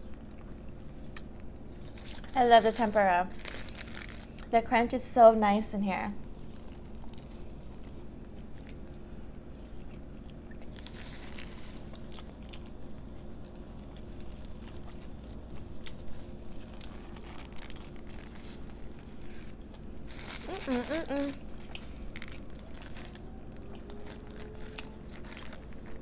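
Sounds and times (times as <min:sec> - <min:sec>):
faint low hum: 0:00.0 - 0:26.0
crunchy biting and chewing: 0:06.3 - 0:26.0.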